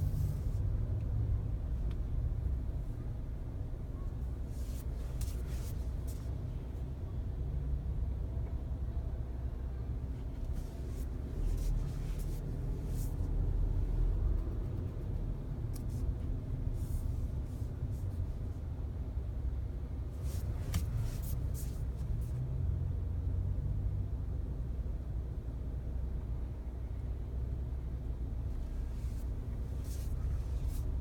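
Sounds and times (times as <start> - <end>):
car cabin road rumble: 0.0 - 31.0
car cabin rumble: 10.0 - 18.6, 19.8 - 22.4, 28.4 - 31.0.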